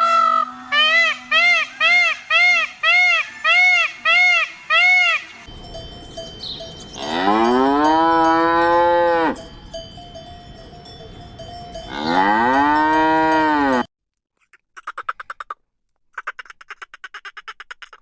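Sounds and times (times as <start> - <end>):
cow mooing: 0.0 - 1.6, 11.9 - 13.9.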